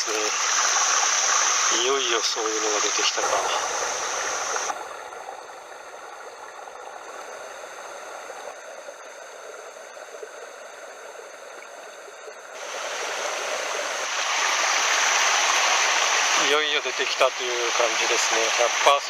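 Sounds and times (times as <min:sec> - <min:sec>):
stream splashing over rocks: 0:00.0 - 0:06.9, 0:12.5 - 0:19.0.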